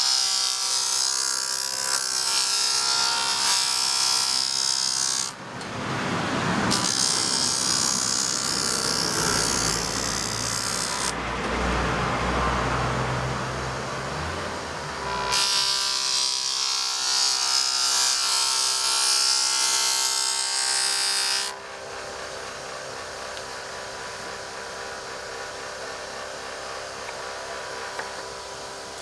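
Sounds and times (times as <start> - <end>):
disc sander grinding: 0.0 - 5.4, 6.7 - 12.4, 13.4 - 21.6.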